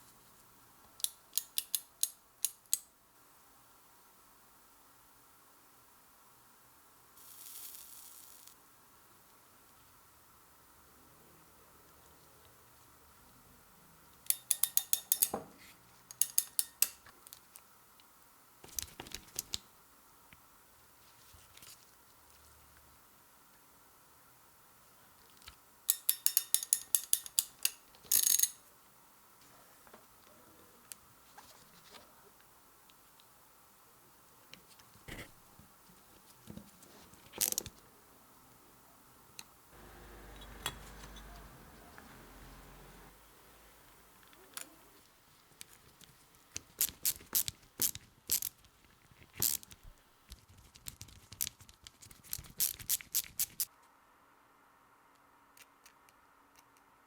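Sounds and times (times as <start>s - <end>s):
clicks of small hard parts: 16.1s - 17.4s, 25.9s - 28.6s, 45.6s - 49.8s
faint low hum: 28.6s - 46.4s.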